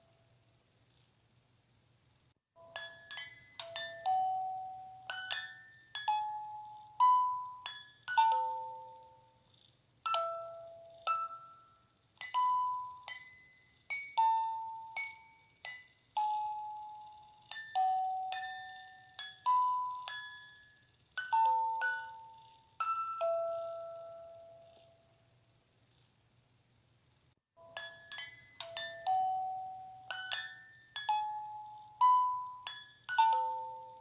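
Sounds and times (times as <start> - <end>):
bell-like chime lullaby melody: 2.6 - 9.4, 10.0 - 25.1, 27.6 - 34.0
faint low hum: 6.2 - 27.4.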